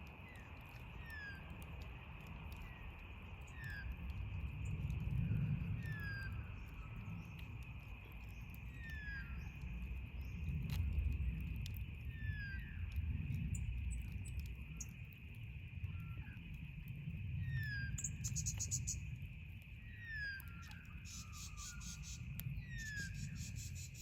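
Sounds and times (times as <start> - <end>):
campfire crackling: 0.0 - 24.0
bird whistling: 21.0 - 23.9.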